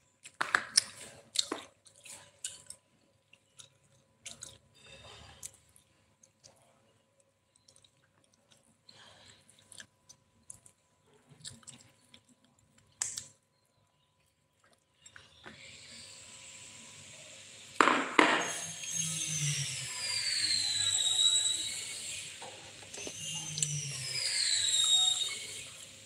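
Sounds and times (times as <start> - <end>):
chewing and crunching: 0.2 - 15.4
loud sharp knocks: 17.8 - 18.5.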